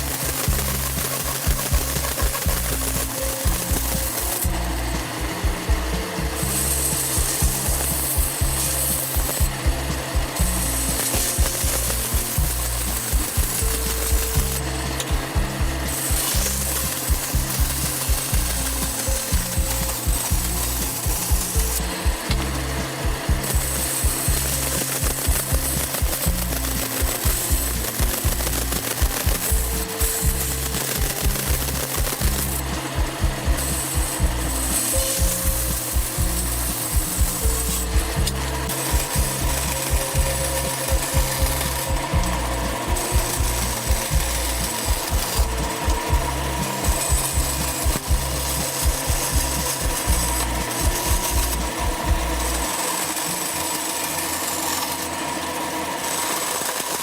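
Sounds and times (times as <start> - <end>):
background music with beat: 0.0 - 56.1
tool rasping wood: 0.0 - 57.0.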